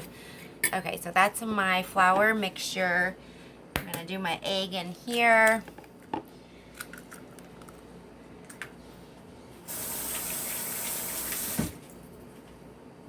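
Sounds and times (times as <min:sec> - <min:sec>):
faucet running into sink: 0:09.7 - 0:11.8
faucet shut off thump: 0:11.3 - 0:11.8.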